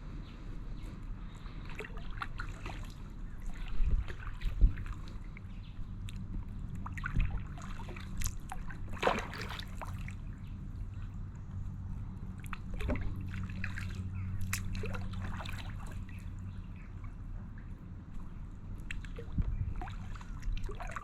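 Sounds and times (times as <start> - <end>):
paddle splashing water: 1.5 - 5.5, 6.1 - 11.0, 12.4 - 16.4, 18.8 - 21.0.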